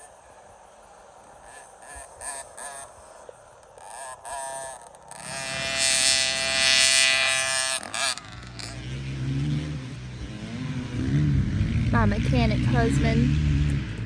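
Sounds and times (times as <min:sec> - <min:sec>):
dirt bike engine revving: 0:03.8 - 0:14.0
lower engine note rising: 0:05.1 - 0:14.0.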